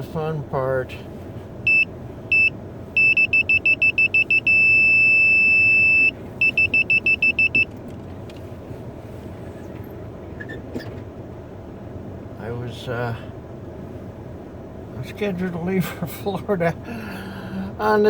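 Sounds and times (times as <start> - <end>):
car engine rumble inside cabin: 0.0 - 18.0
parking sensor beeps: 1.6 - 7.8.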